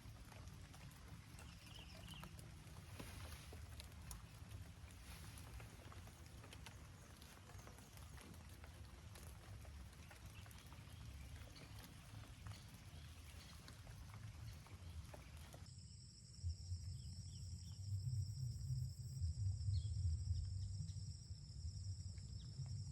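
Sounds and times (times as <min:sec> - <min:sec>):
low rumble: 0:16.3 - 0:22.9.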